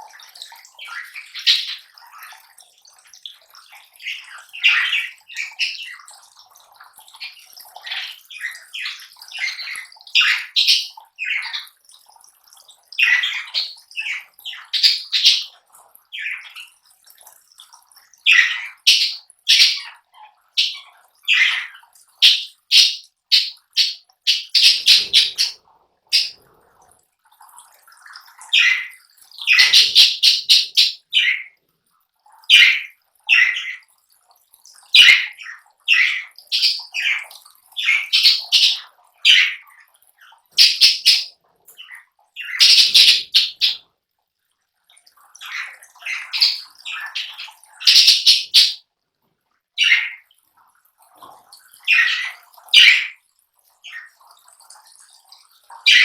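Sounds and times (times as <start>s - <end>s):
lovebirds chirping and squawking: 0.8s - 2.1s, 7.2s - 11.7s, 13.0s - 15.6s, 18.3s - 20.0s, 20.6s - 26.5s, 28.5s - 31.6s, 32.5s - 33.8s, 35.0s - 39.7s, 40.6s - 43.8s, 45.4s - 48.8s, 49.8s - 50.2s, 51.8s - 53.2s, 53.8s - 54.1s.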